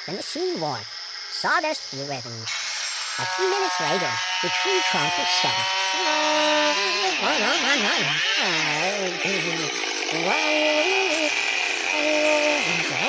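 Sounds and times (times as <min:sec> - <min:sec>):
chainsaw cutting wood: 0:02.5 - 0:13.0.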